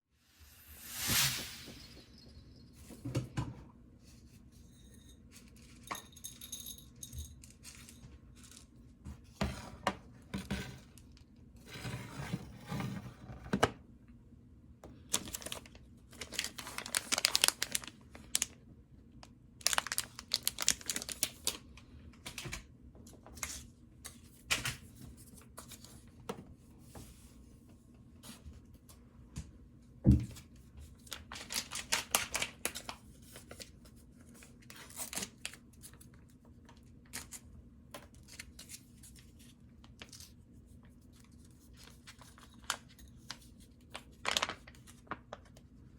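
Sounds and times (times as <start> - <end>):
plastic packaging rustling and tearing: 15.1 - 18.6, 19.6 - 21.6, 31.0 - 36.2, 38.1 - 40.4, 41.1 - 45.6.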